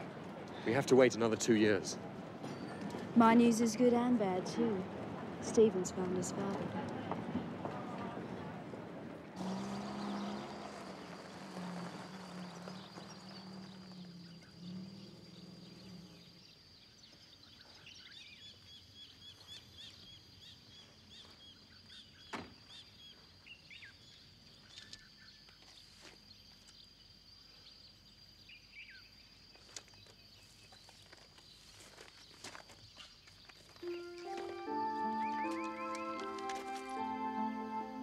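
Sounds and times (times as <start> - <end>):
car engine running: 9.4 - 15.9.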